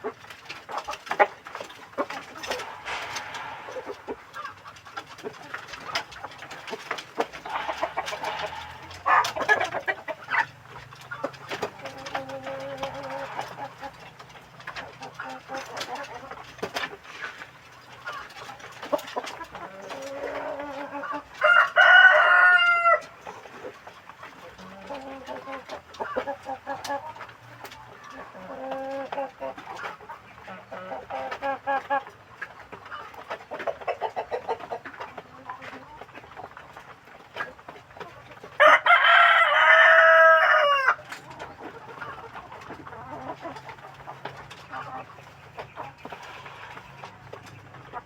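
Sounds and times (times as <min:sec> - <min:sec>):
chickens clucking softly: 0:00.0 - 0:48.0
rooster crowing: 0:21.4 - 0:23.1, 0:38.6 - 0:41.0.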